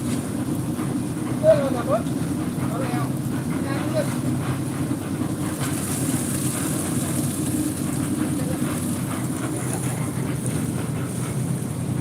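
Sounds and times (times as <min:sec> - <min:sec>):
heavy machinery engine drone: 0:00.0 - 0:12.0.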